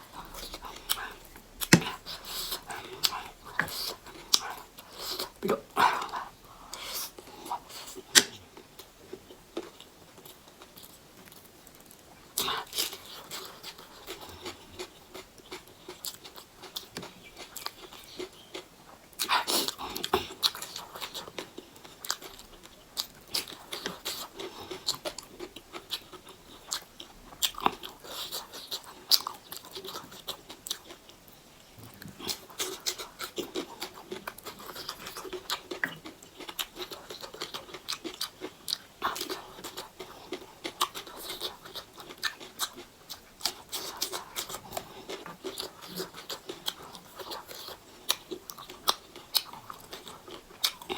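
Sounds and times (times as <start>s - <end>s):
person chewing and biting food: 0.1s - 11.4s, 31.8s - 50.9s.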